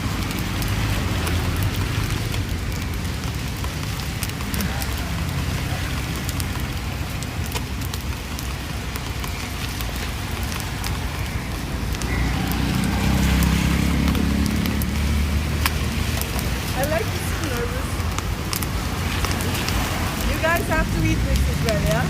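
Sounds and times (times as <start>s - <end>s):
vehicle engine rumble: 0.0s - 22.0s.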